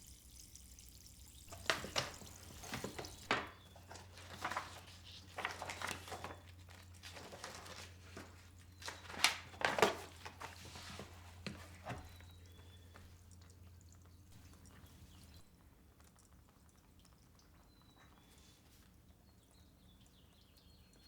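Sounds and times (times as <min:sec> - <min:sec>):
kitchen items knocking and clattering: 0:01.5 - 0:05.0.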